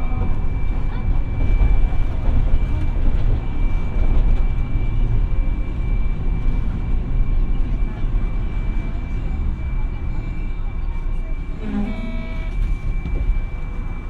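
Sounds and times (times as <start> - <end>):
tram wheels rumbling on track: 0.0 - 14.0.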